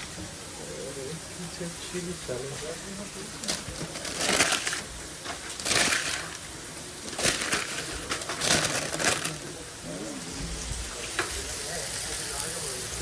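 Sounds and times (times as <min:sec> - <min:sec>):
rustling crushing noise: 0:03.4 - 0:09.6.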